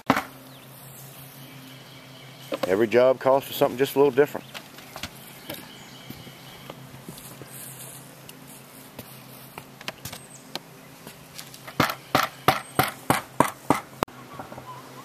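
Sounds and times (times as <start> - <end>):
hammer striking nail: 11.8 - 13.9.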